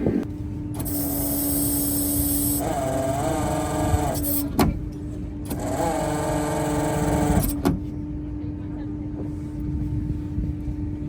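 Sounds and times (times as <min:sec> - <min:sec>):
motor humming and whining: 0:00.0 - 0:11.0.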